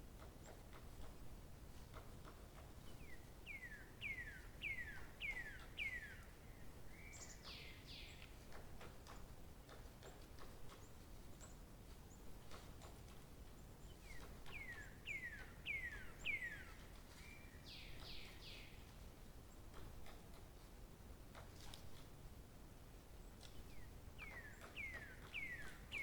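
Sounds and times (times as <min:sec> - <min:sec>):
faint outdoor hiss: 0:00.0 - 0:26.0.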